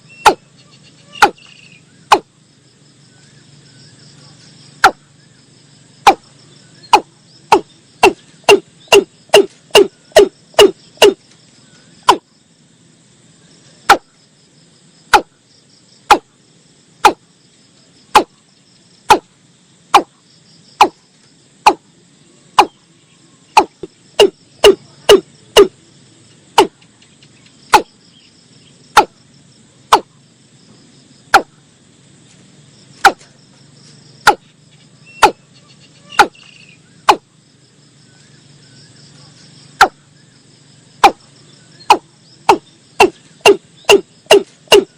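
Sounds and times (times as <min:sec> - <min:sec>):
bird calling sharp notes: 0:00.0 - 0:02.2, 0:06.8 - 0:11.2, 0:35.0 - 0:37.2
insect trill: 0:00.0 - 0:44.9.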